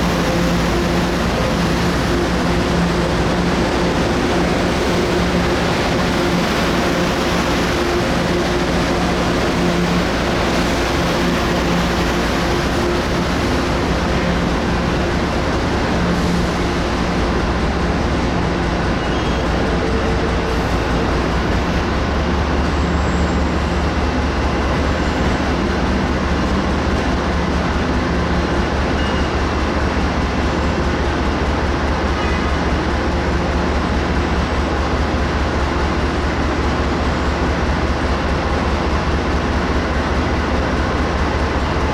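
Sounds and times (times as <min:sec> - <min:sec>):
diesel locomotive engine running: 0:00.0 - 0:41.9
rumble of rolling train: 0:00.0 - 0:41.9.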